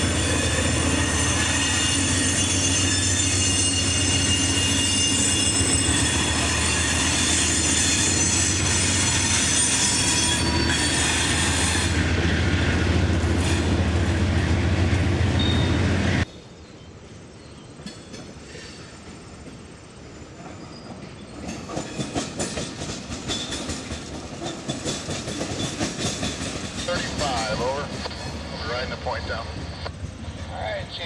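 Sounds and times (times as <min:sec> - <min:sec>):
high wheel squeal: 0:00.0 - 0:12.0, 0:15.4 - 0:15.8
train wheels rumbling on rail: 0:00.0 - 0:16.3, 0:17.6 - 0:31.0
wheels clacking over rail joints: 0:20.4 - 0:28.4.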